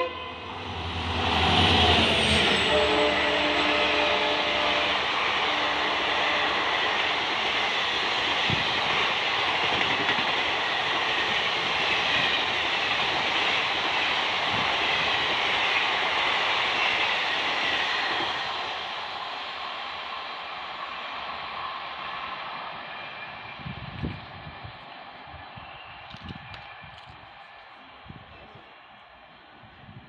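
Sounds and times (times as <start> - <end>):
train wheels rumbling and rattling: 0.4 - 20.0.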